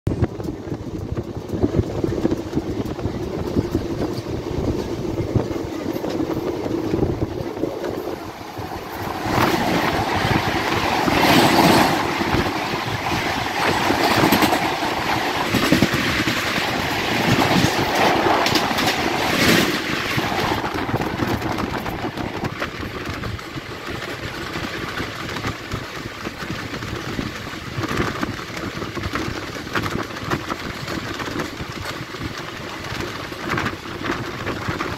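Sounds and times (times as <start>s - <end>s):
passing train rush: 0.1s - 34.9s
train wheels clattering: 0.1s - 34.9s.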